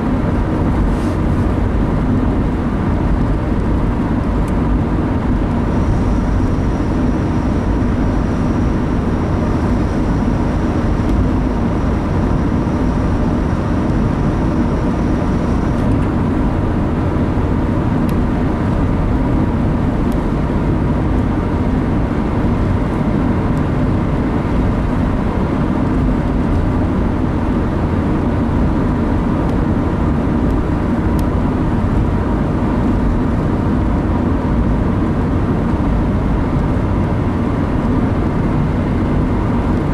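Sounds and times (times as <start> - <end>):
car engine and tyre rumble: 0.0 - 39.9
faint high whine: 5.6 - 16.0.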